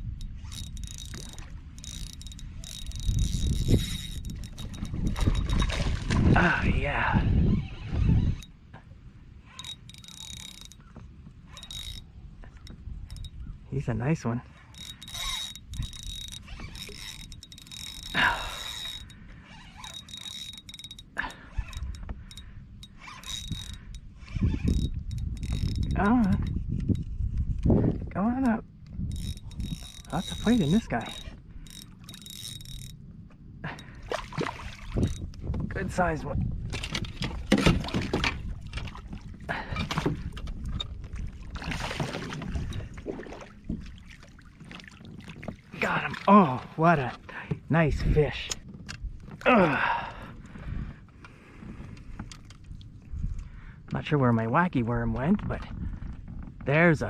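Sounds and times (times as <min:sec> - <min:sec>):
fishing reel clicking and whirring: 0:00.0 - 0:05.8, 0:07.4 - 0:08.6, 0:09.4 - 0:13.5, 0:14.5 - 0:27.6, 0:28.4 - 0:33.1, 0:34.6 - 0:35.5
water splashing and sloshing: 0:00.0 - 0:06.8, 0:14.4 - 0:47.8
wind rumble on microphone: 0:00.0 - 0:57.0.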